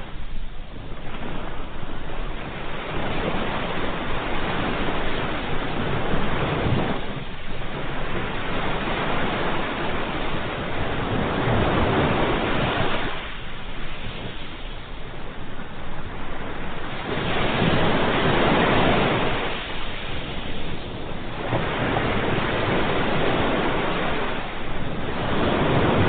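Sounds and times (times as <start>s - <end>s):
ocean waves breaking: 0.0s - 26.0s.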